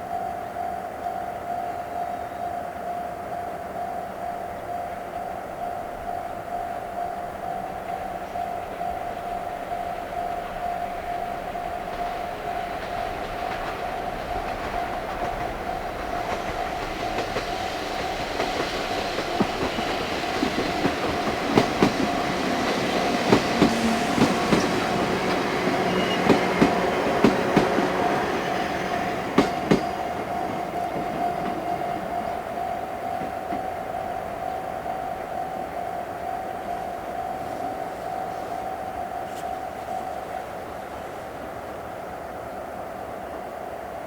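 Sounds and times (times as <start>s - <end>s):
crossing warning bell ringing: 0.0s - 41.9s
train wheels clicking: 7.2s - 41.9s.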